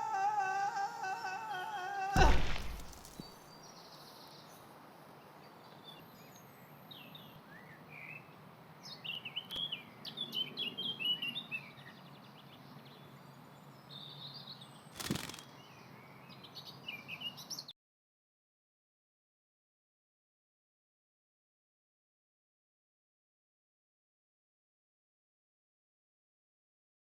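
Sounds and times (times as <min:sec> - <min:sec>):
short loud noise burst: 0:02.2 - 0:03.2.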